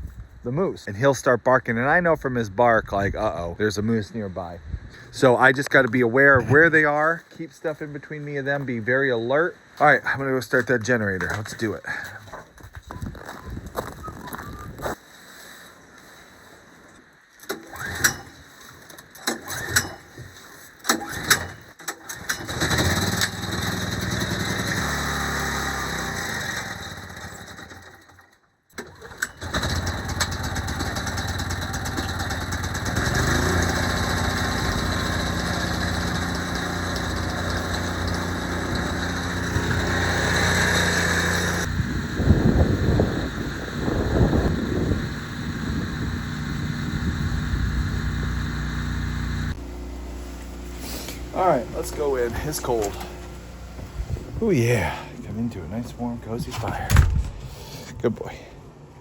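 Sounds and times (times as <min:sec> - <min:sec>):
generator engine running: 0:22.2 - 0:28.2, 0:28.8 - 0:57.8.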